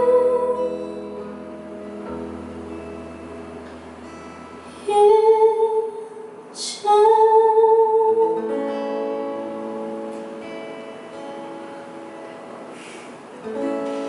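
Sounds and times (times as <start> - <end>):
woman singing: 0.0 - 1.3, 4.8 - 8.9
acoustic guitar chords: 0.0 - 14.0.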